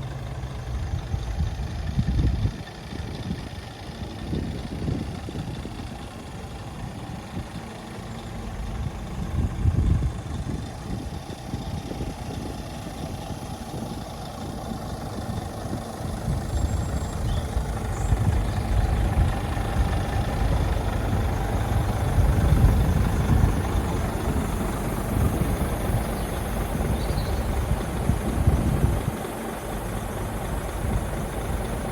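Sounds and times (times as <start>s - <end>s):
truck diesel engine idling: 0.0s - 31.9s.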